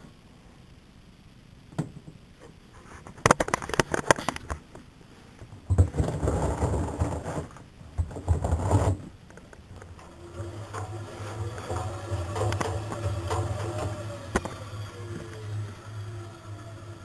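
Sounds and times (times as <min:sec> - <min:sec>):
low motor hum: 0:09.8 - 0:17.0.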